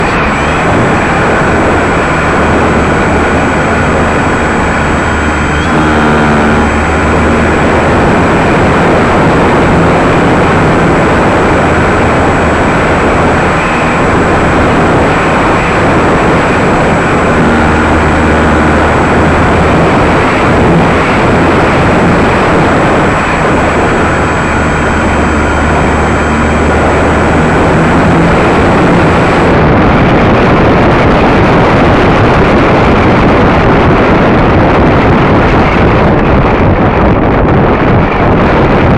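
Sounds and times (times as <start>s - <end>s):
steady rush of noise: 0.0s - 38.9s
model airplane electric motor: 0.3s - 29.4s.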